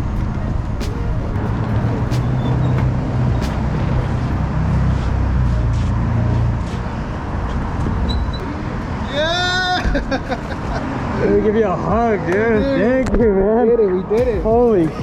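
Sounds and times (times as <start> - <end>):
road and traffic noise: 0.0 - 15.0
vehicle engine humming: 0.0 - 15.0.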